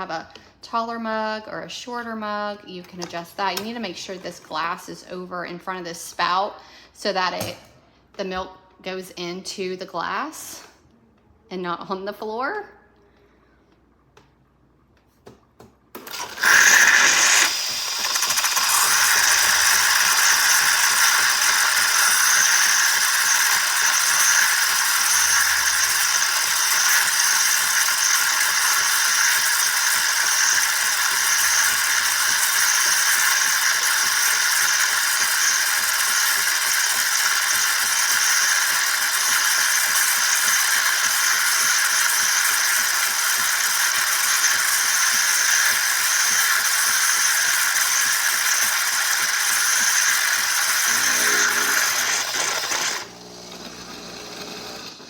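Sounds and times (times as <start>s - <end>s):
steam hissing from milk frother: 16.0s - 55.0s.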